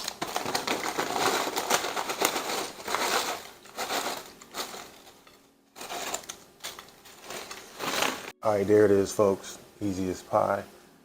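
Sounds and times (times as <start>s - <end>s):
chips poured from crinkling bag: 0.0s - 5.2s.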